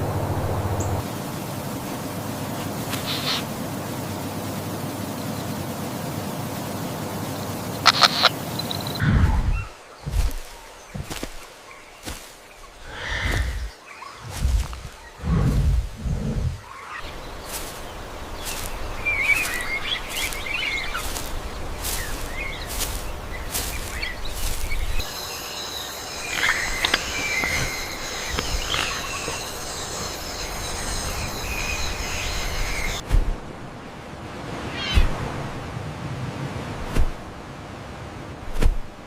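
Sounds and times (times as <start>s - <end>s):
low rumble: 0.0s - 1.1s, 9.0s - 10.4s, 12.8s - 25.1s
birds chirping: 0.0s - 33.0s
high-pitched buzz: 18.4s - 33.0s.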